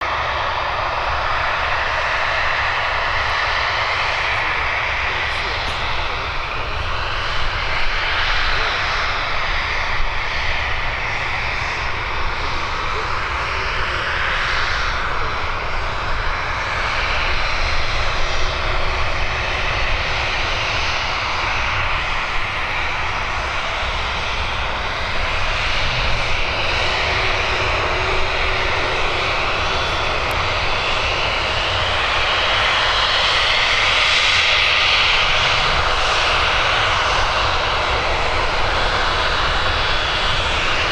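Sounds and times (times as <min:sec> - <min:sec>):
jet engines running: 0:00.0 - 0:40.9.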